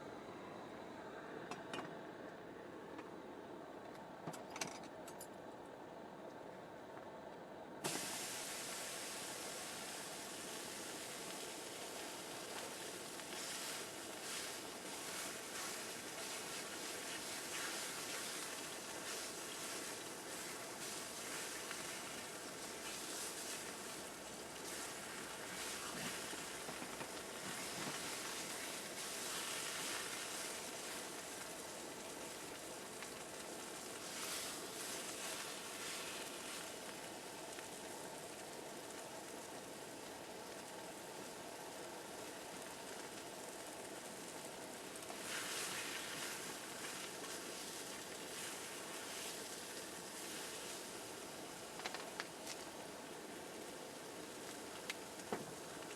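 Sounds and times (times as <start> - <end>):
sizzling hiss over campfire: 7.8 - 55.9.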